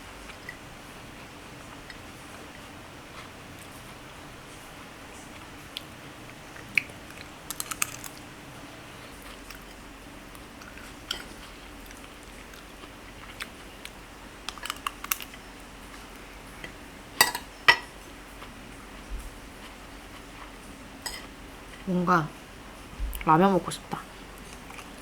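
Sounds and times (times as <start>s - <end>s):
person chewing: 6.6s - 8.2s, 9.2s - 15.4s
utensils clicking on lunchbox: 7.5s - 8.2s.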